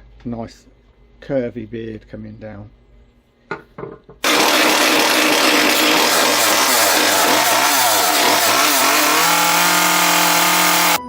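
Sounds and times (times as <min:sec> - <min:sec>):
chainsaw cutting wood: 0:04.2 - 0:11.0.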